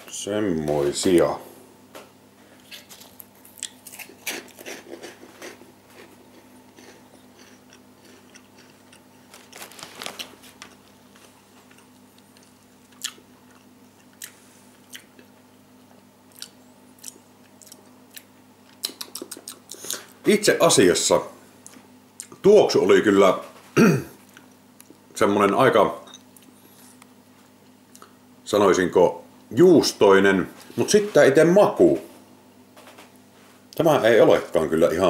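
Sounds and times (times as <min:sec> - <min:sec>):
crunchy snack being chewed: 0:02.6 - 0:15.3, 0:16.3 - 0:20.1.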